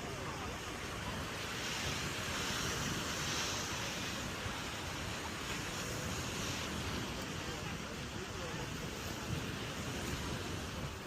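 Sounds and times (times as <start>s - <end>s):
ocean surf breaking on beach: 0.0s - 11.0s
wind buffeting microphone: 0.0s - 11.0s.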